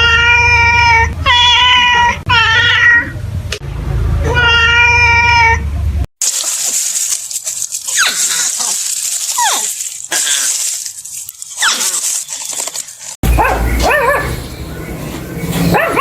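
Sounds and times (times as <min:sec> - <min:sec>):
animal crying high and drawn-out: 0:00.0 - 0:03.2, 0:04.2 - 0:05.7.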